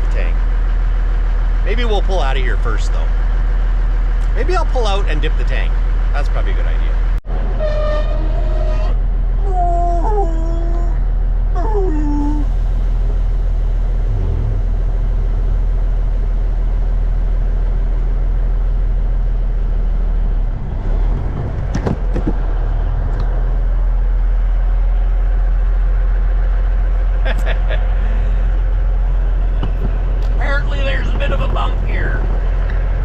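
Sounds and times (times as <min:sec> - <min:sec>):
truck diesel engine running: 0:00.0 - 0:09.6, 0:11.0 - 0:33.0
squeaky sliding tones: 0:07.4 - 0:09.0.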